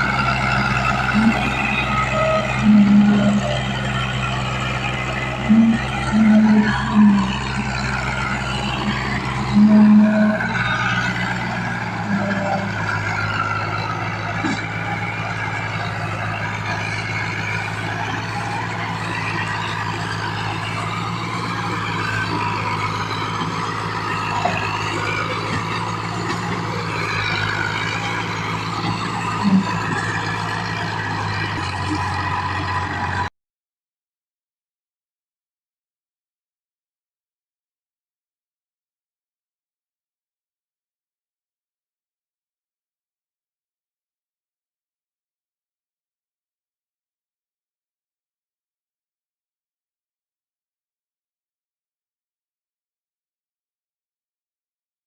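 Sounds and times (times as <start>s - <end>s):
tractor engine running: 0.0s - 33.3s.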